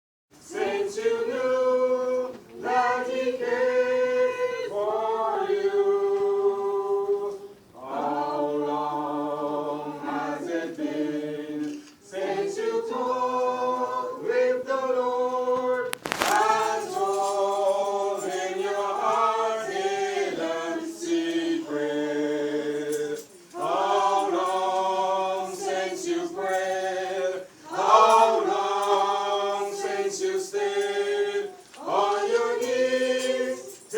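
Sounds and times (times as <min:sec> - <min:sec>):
choir singing in harmony: 0:00.4 - 0:33.9.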